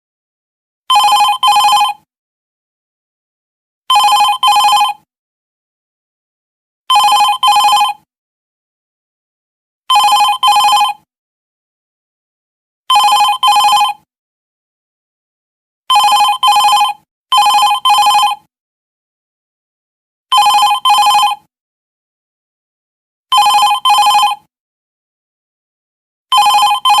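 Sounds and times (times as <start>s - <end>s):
office telephone ringing: 0.9s - 1.9s, 3.9s - 4.9s, 6.9s - 8.0s, 9.9s - 11.0s, 15.9s - 18.4s, 20.3s - 21.4s, 23.3s - 24.4s, 26.3s - 27.0s.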